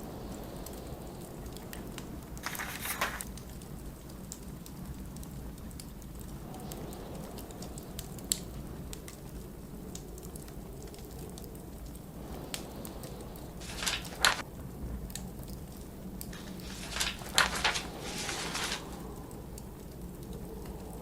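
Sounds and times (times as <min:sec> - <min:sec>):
blizzard wind: 0:00.0 - 0:21.0
wood fire crackling and popping: 0:00.0 - 0:21.0
book page turning: 0:02.4 - 0:03.3, 0:13.6 - 0:14.4, 0:16.4 - 0:19.0.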